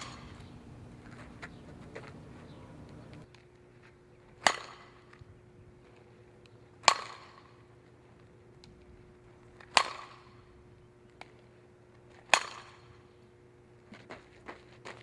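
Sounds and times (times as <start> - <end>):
softball bat cracks: 4.4 - 5.2, 6.8 - 7.6, 9.6 - 10.4, 12.2 - 12.9.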